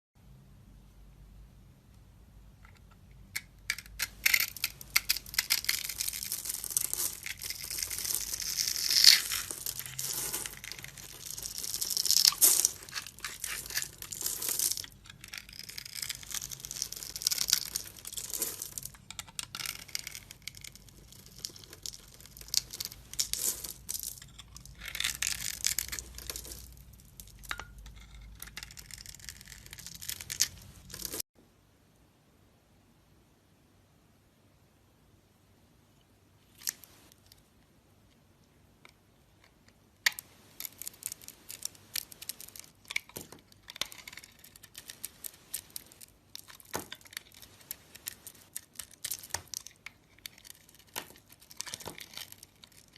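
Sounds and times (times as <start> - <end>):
dry soap crunching and crackling: 3.4 - 31.3, 39.4 - 52.9.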